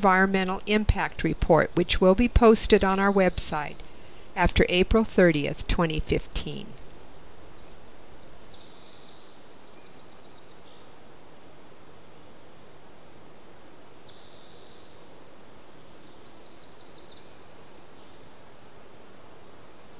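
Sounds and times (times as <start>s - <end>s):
small birds calling: 0.0s - 11.0s, 14.0s - 18.6s
steady outdoor hiss: 0.0s - 19.9s.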